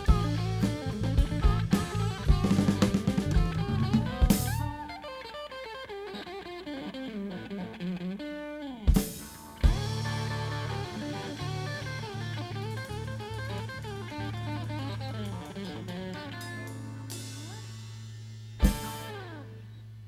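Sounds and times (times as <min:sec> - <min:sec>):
low bass note: 0:00.0 - 0:04.8, 0:09.7 - 0:15.1
drum kit: 0:00.0 - 0:04.9, 0:08.9 - 0:19.4
blues-rock band playing: 0:00.0 - 0:19.6
electric guitar lines: 0:00.0 - 0:20.0.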